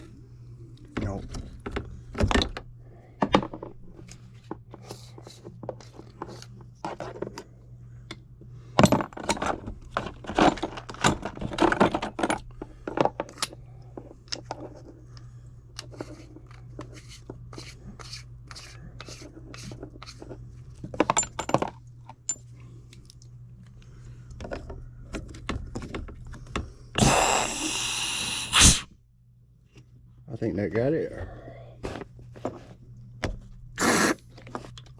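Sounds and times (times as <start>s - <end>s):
metal parts clicking and scraping: 8.8s - 15.0s, 18.0s - 22.5s
loud gas hiss: 27.0s - 28.9s, 33.8s - 34.2s.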